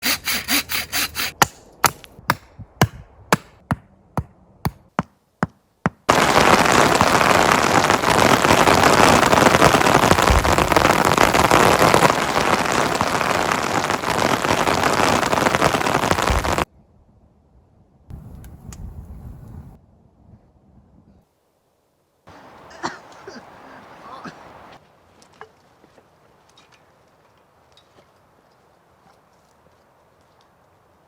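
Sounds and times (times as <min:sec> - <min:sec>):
sharp knocks: 0:01.4 - 0:06.1
heavy rain pouring: 0:06.1 - 0:16.7, 0:22.3 - 0:24.8.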